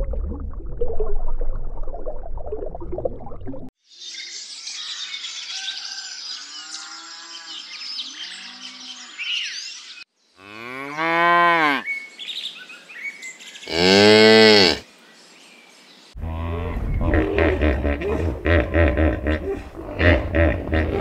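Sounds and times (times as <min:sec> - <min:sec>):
small birds chirping: 0:04.0 - 0:10.8
cow mooing: 0:10.4 - 0:11.9, 0:13.7 - 0:14.8
hippo grunting: 0:16.2 - 0:21.0.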